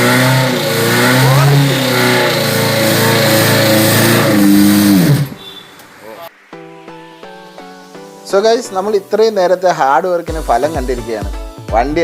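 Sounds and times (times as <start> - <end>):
car engine revving: 0.0 - 5.5.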